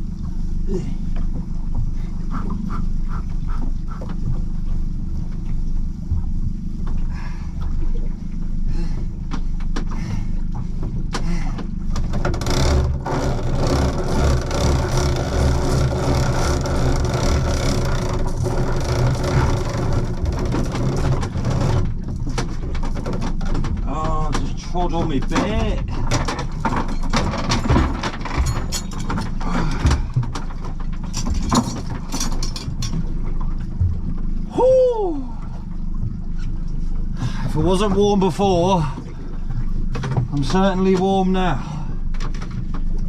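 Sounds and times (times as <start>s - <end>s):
boat engine running: 0.0s - 43.0s
low rumble: 0.0s - 43.0s
man breathing hard: 7.1s - 7.6s, 8.6s - 9.2s, 9.9s - 10.5s, 11.2s - 11.7s.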